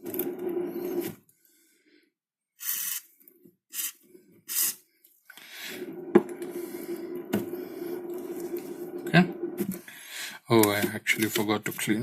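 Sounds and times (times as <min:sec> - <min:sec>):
steady noise: 0:00.0 - 0:01.1, 0:05.3 - 0:12.0.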